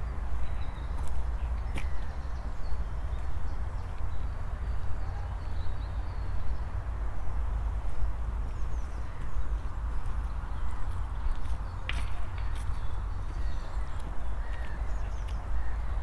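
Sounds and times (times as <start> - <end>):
footsteps on outdoor path: 0.4 - 2.2, 10.0 - 15.5.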